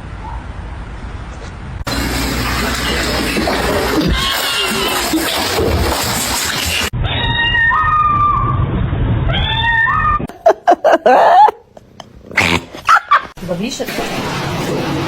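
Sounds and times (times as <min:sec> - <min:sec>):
cats meowing: 0:07.0 - 0:08.6, 0:09.3 - 0:10.3.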